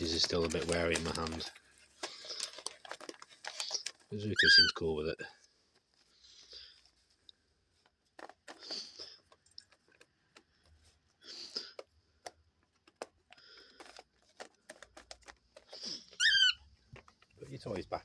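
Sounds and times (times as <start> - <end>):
paper rustling and crinkling: 0.0 - 18.0
cockatiel chirp: 4.4 - 4.8, 16.2 - 16.6.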